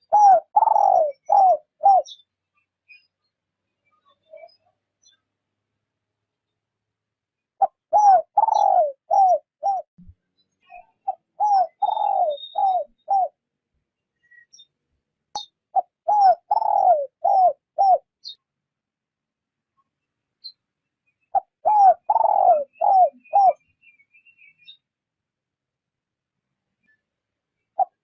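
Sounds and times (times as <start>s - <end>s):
dove cooing: 0.0s - 2.2s, 7.6s - 9.9s, 11.1s - 13.4s, 15.7s - 18.1s, 21.3s - 23.6s, 27.8s - 28.0s
small birds chirping: 0.0s - 6.8s, 7.4s - 18.8s, 19.5s - 25.2s.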